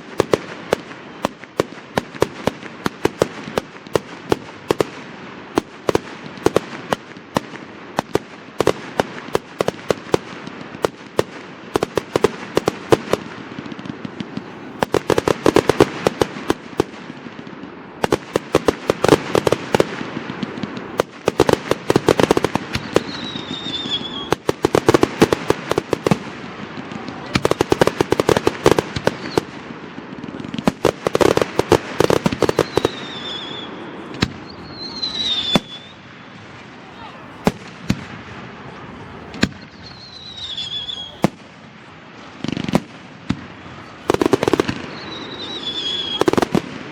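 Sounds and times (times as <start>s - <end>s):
fireworks cracking and popping: 0.0s - 46.9s
fireworks falling whistles: 18.0s - 29.6s, 30.2s - 46.8s.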